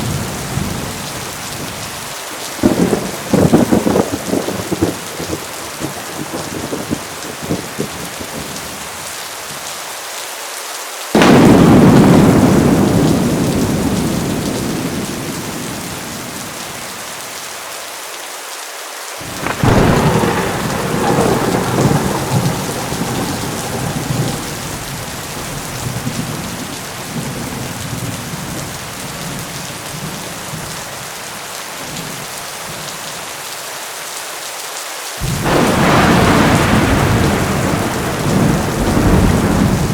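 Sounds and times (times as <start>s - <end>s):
thunder rumbling: 0.0s - 1.9s, 2.6s - 8.7s, 11.2s - 17.0s, 19.2s - 30.7s, 35.2s - 39.9s
heavy rain falling: 0.0s - 39.9s.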